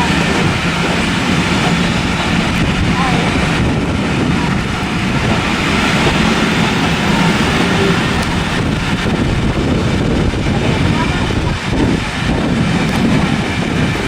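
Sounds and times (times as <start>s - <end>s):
train running: 0.0s - 14.0s.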